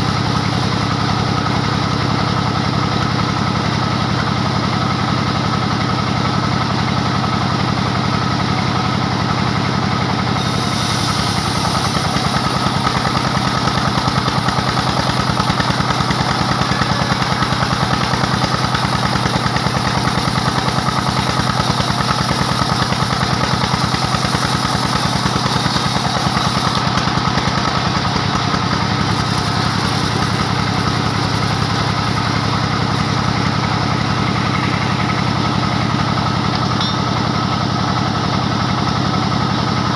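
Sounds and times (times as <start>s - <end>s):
saw blade cutting log: 0.0s - 1.6s, 10.3s - 35.8s
diesel engine running: 0.0s - 39.9s.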